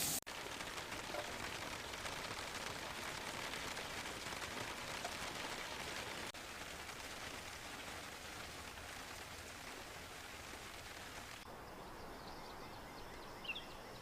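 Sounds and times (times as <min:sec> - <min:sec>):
light rain hissing: 0:00.0 - 0:11.6.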